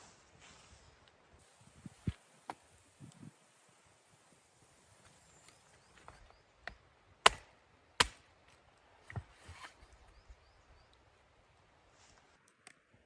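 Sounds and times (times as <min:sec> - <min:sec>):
wood chopping strikes: 0:06.1 - 0:08.2.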